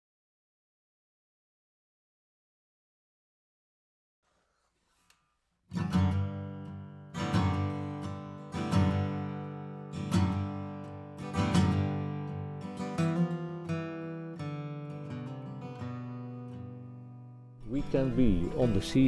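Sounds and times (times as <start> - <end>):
acoustic guitar strumming chords: 5.7 - 19.0.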